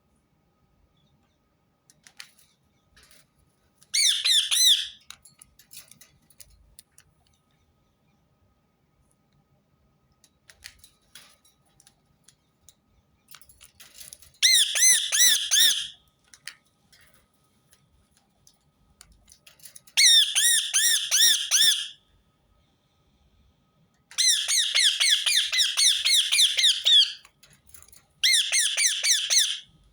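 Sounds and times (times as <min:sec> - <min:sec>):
parakeet shrill screeching calls: 0:04.0 - 0:05.0, 0:14.4 - 0:16.0, 0:20.0 - 0:22.0, 0:24.2 - 0:27.2, 0:28.2 - 0:29.6.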